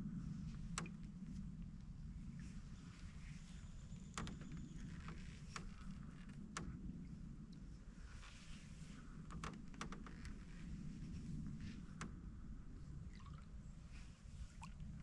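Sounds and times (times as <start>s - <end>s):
steady low rumble: 0.0s - 15.0s
paddle knocks and canoe creaks: 0.5s - 1.5s, 2.7s - 7.0s, 8.3s - 12.4s
paddle splashes and drips: 13.0s - 15.0s.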